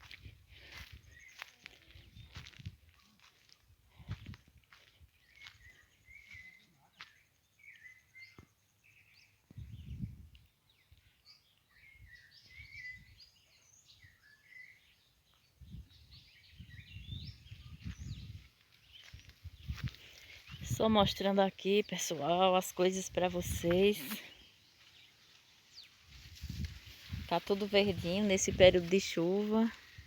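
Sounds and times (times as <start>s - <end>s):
faint bird chirping: 0.7s - 20.7s.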